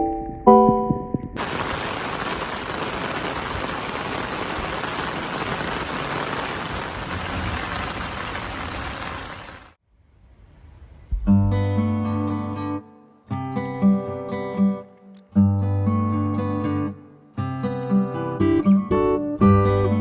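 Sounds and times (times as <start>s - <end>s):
water hiss: 1.4s - 9.8s.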